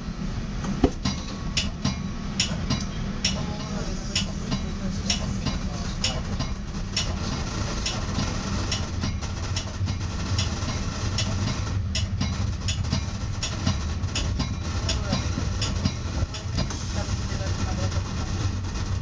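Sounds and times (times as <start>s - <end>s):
train low rumble: 0.0s - 19.0s
sharp clicks and rattles: 4.2s - 16.9s.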